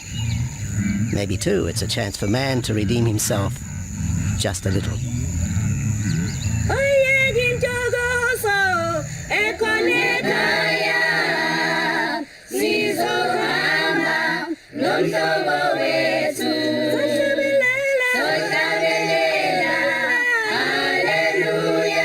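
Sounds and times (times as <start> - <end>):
choir singing unaccompanied: 5.7 - 22.0.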